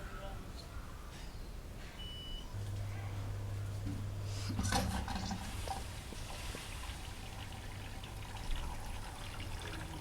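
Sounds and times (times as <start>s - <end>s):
water running into washing machine: 4.6s - 10.0s.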